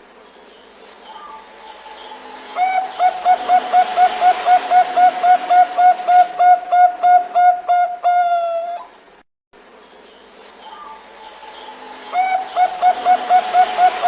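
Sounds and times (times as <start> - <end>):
faint hiss: 0.0 - 14.0
dove cooing: 1.1 - 8.9, 10.7 - 14.0.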